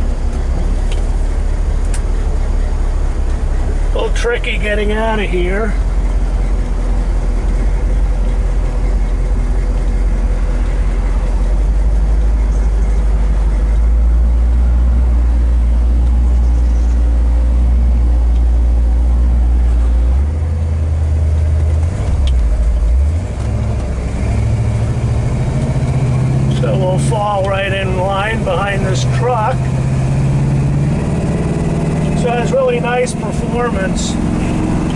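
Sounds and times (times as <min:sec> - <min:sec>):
car engine pulling away: 0:00.0 - 0:34.9.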